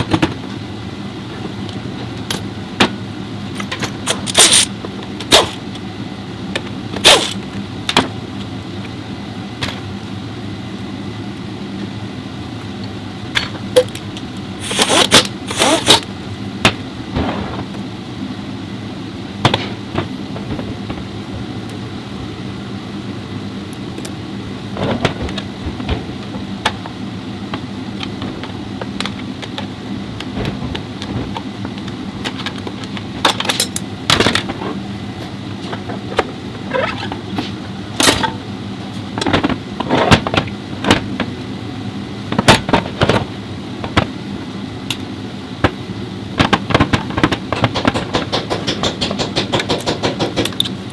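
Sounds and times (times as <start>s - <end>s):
metal parts knocking and clinking: 3.6s - 5.6s, 32.2s - 34.5s.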